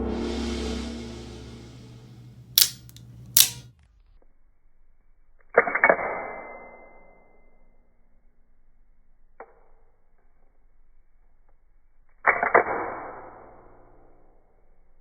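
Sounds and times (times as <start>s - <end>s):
switchblade snapping: 2.6s - 3.6s.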